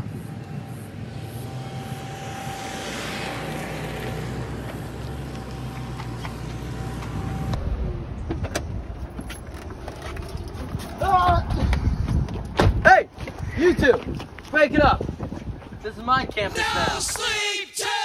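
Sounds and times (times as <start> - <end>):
car engine running with whine: 0.0 - 11.4.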